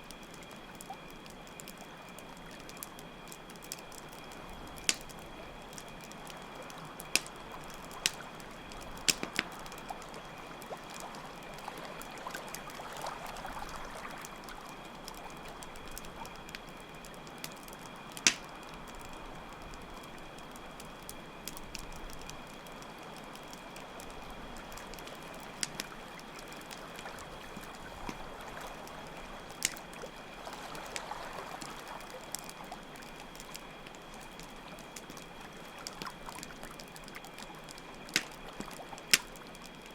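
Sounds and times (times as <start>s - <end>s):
campfire crackling and popping: 0.0s - 39.9s
crickets chirping: 0.0s - 39.9s
water: 0.0s - 39.9s.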